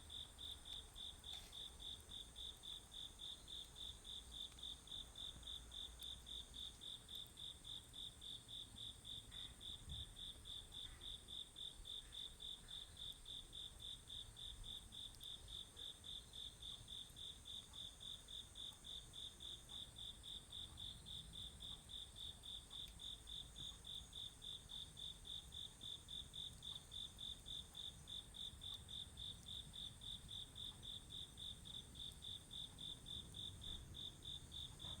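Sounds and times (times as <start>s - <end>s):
crickets chirping: 0.0s - 35.0s.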